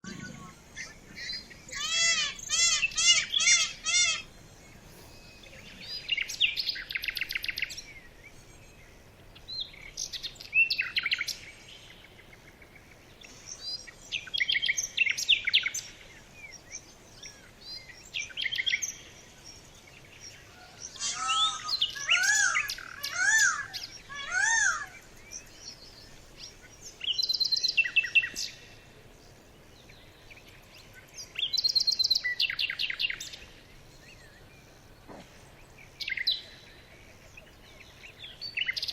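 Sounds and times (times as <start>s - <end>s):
rising and falling bird calls: 0.0s - 8.0s, 20.2s - 28.7s
birds chirping trills: 0.0s - 38.9s.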